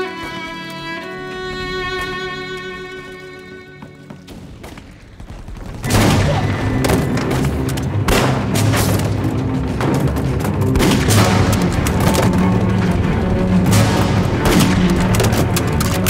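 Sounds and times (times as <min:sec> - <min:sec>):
dramatic music score: 0:00.0 - 0:16.0
explosions: 0:04.3 - 0:09.2
gunfire: 0:04.3 - 0:16.0.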